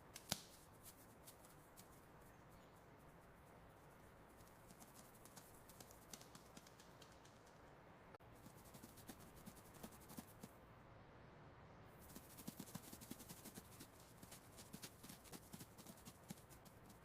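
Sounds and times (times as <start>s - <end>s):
mouse claws tapping: 4.4s - 7.7s.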